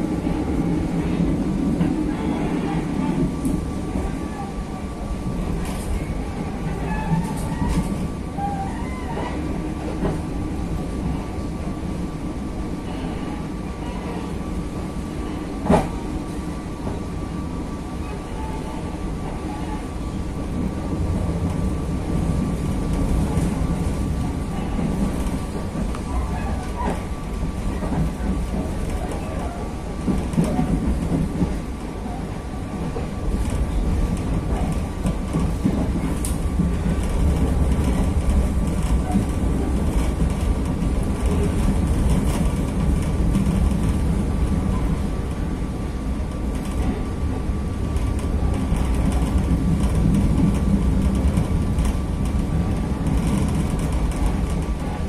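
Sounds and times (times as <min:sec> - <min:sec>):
wheels rumbling on rails: 0:00.0 - 0:55.0.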